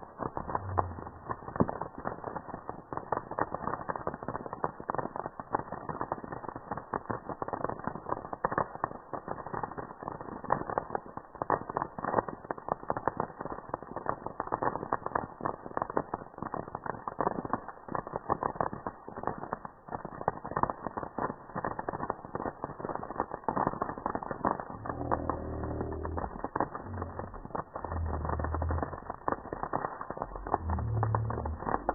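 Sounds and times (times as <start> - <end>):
campfire crackling: 0.0 - 31.9.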